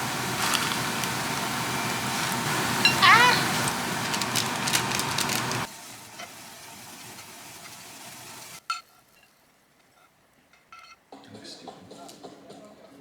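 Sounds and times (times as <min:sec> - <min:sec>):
food sizzling in a pan: 0:00.0 - 0:09.2.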